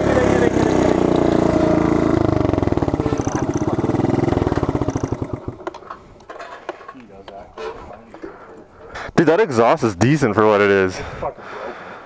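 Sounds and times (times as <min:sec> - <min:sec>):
mini bike engine running: 0:00.0 - 0:06.0.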